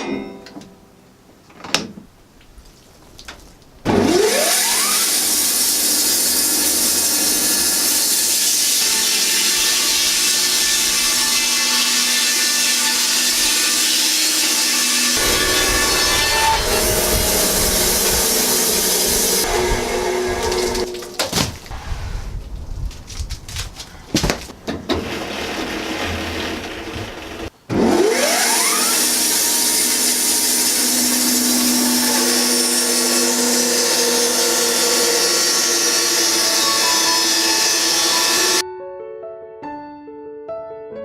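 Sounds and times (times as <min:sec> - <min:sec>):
band sawmill cutting log: 0:03.9 - 0:21.2, 0:24.9 - 0:38.6.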